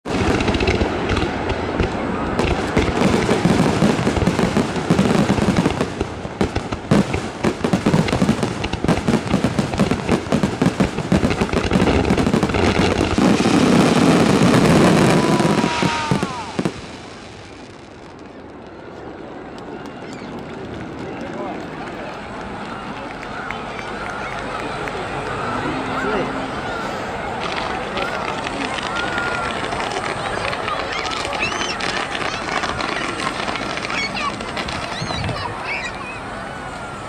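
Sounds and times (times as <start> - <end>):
fireworks bursting: 0.0 - 22.6, 23.6 - 37.0
falling firework whistle: 9.8 - 18.3, 25.4 - 37.0.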